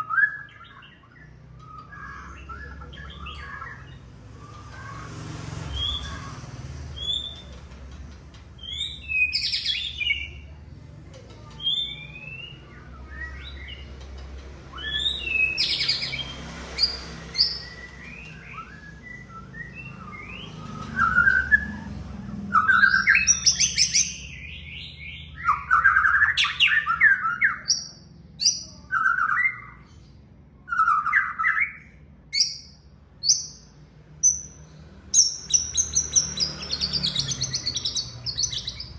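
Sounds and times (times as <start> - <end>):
bird singing whistled notes: 0.0 - 4.0, 8.6 - 10.4, 14.7 - 29.9, 30.7 - 38.9.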